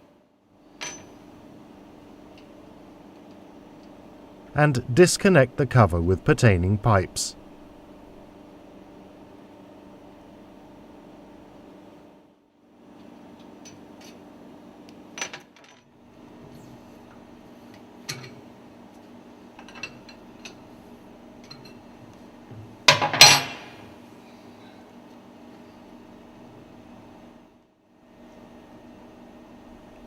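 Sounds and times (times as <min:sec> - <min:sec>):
machinery hum: 0:00.8 - 0:11.6.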